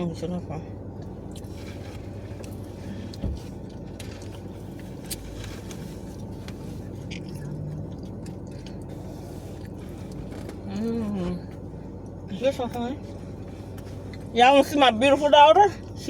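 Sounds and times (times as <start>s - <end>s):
low background hum: 0.0s - 16.0s
person chewing pizza: 1.0s - 12.2s.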